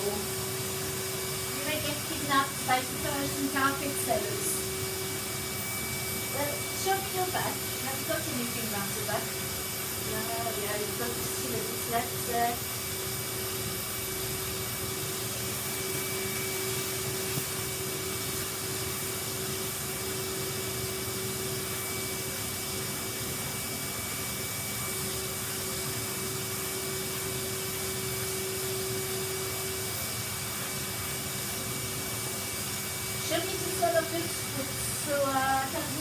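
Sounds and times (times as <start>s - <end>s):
vacuum cleaner running: 0.0s - 36.0s.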